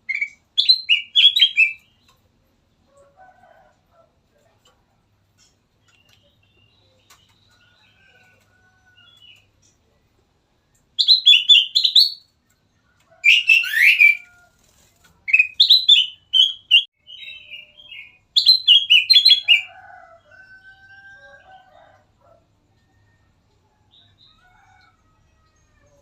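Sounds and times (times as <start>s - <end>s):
fainter lower bird call: 0.0s - 2.0s, 11.0s - 12.2s, 13.2s - 14.3s.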